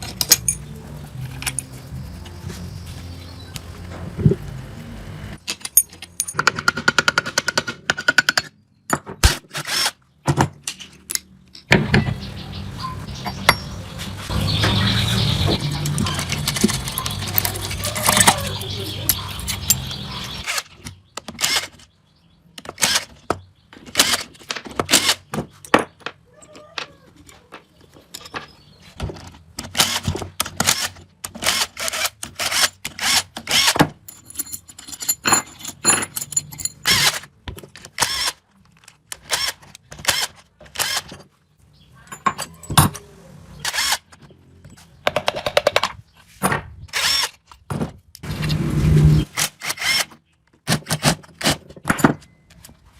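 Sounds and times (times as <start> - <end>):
tools knocking and clinking: 0.0 - 0.7, 5.5 - 9.2, 33.8 - 37.8, 42.0 - 43.0.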